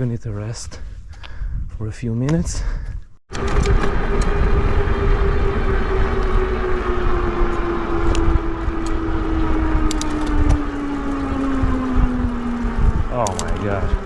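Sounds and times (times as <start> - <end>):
wind rumbling on microphone: 0.0 - 14.0
motor hum: 3.3 - 14.0.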